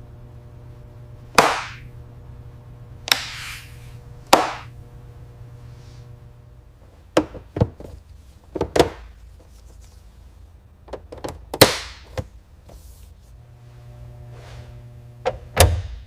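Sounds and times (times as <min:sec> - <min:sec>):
tools knocking and clunking: 0:07.1 - 0:09.1, 0:10.9 - 0:12.3.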